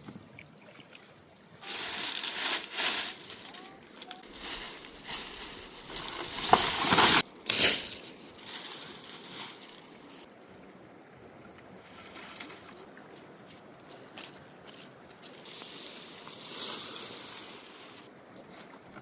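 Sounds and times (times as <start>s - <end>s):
water splashing and sloshing: 0.0s - 19.0s.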